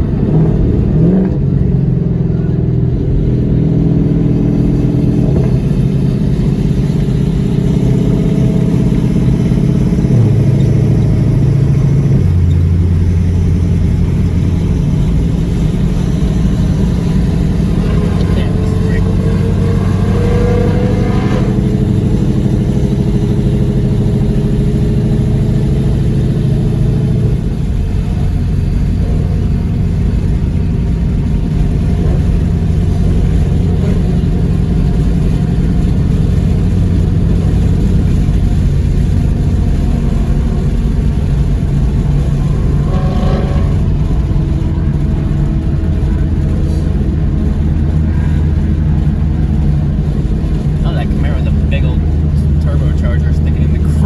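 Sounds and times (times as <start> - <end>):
car engine running at low revs: 0.0 - 54.0.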